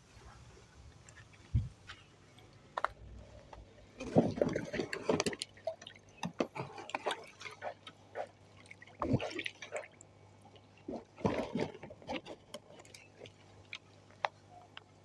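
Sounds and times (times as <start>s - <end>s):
water splashing and dripping: 4.0s - 13.9s.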